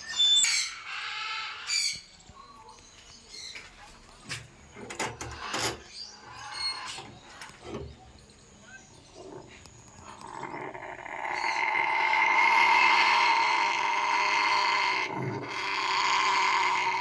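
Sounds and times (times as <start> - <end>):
parrot harsh raspy calls: 0.0 - 2.0, 8.6 - 17.0.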